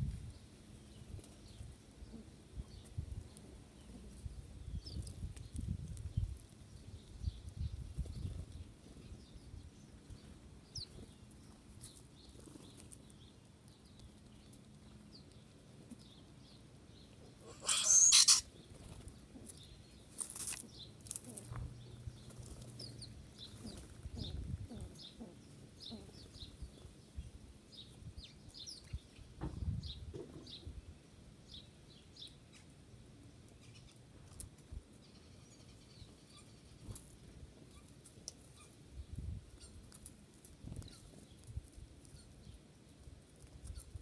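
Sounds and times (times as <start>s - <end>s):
songbirds chirping: 0.0s - 44.0s
wings fluttering: 11.8s - 13.0s, 17.4s - 25.0s.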